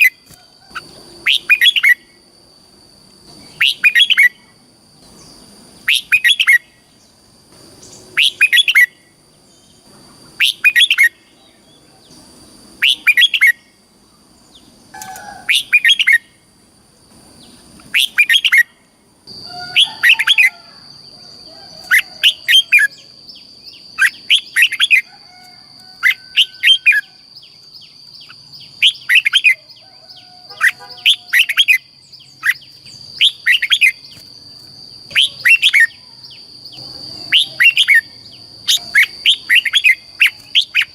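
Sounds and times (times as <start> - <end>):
bird singing chirpy phrases: 3.3 - 16.3, 17.4 - 18.8, 21.8 - 25.1, 26.0 - 40.9.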